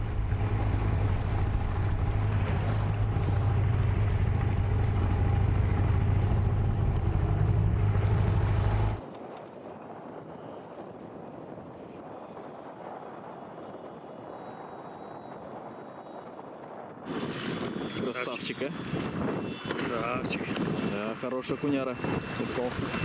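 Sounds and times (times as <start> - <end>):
outboard motor running: 0.0 - 9.0
wind noise: 0.0 - 23.0.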